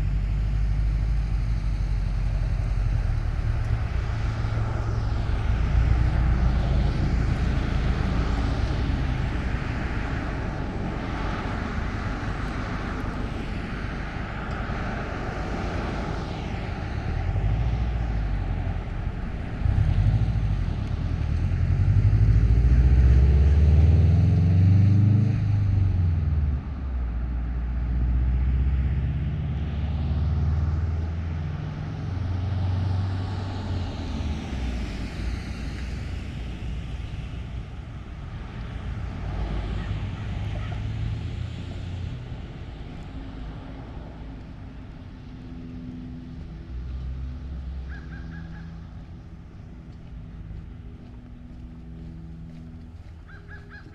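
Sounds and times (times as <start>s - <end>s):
vehicle engines passing: 0.0s - 53.9s.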